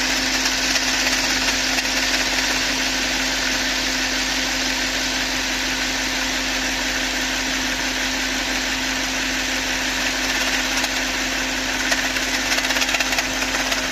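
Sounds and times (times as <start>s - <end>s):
engine ticking: 0.0s - 4.0s, 9.6s - 13.9s
car engine idling: 0.0s - 13.9s.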